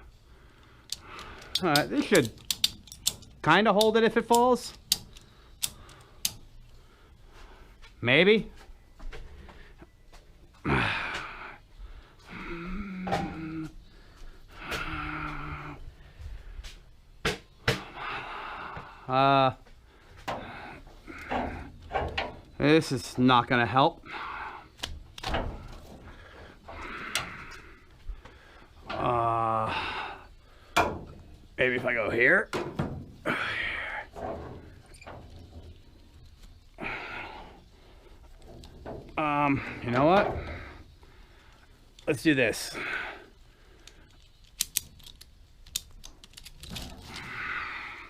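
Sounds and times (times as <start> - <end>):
sharp clicks and light knocks: 0.6 - 6.8, 20.2 - 23.3, 24.8 - 29.1, 43.8 - 47.3
metal tools clicking and tapping: 0.9 - 6.5
man humming: 12.3 - 13.8, 14.6 - 15.8.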